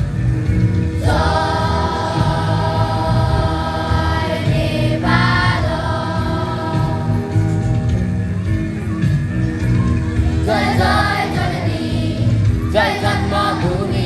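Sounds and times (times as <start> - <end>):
musical accompaniment: 0.0 - 14.0
group of voices singing: 1.0 - 7.8, 10.4 - 14.0.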